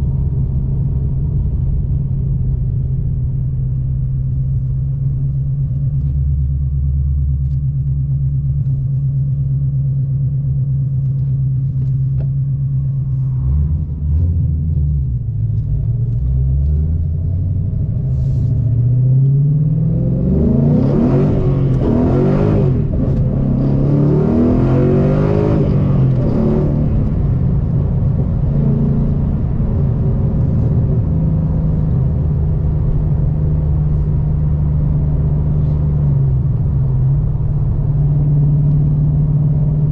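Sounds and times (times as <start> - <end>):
car engine idling with deep rumble: 0.0 - 39.9
car engine revving: 12.7 - 39.9.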